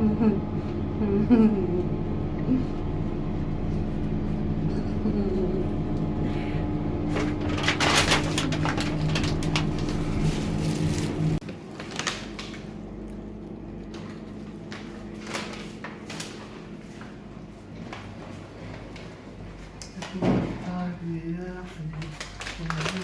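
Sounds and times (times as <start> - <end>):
elevator hum: 0.0 - 11.4
elevator rattling: 7.0 - 11.4.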